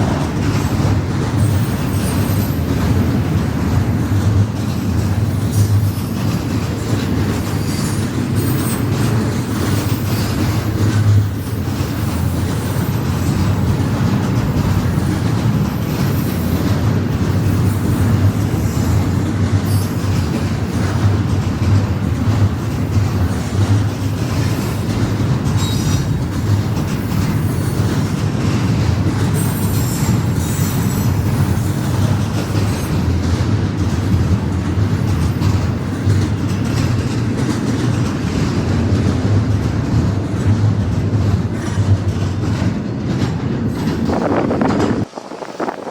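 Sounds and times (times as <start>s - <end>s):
train wheels rumbling on rail: 0.0s - 45.9s
high wheel squeals: 7.6s - 8.9s, 25.6s - 26.1s, 29.4s - 32.0s.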